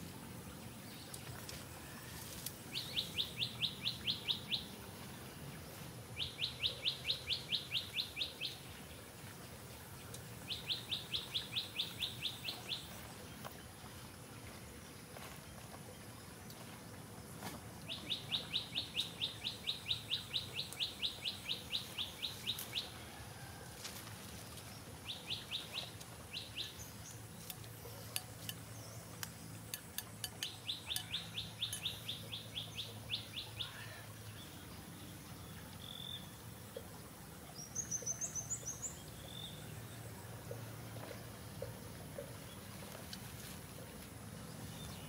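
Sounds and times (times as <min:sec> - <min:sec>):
high twittering chirps: 0:25.2 - 0:33.8
bird chirping rapidly: 0:30.2 - 0:33.8.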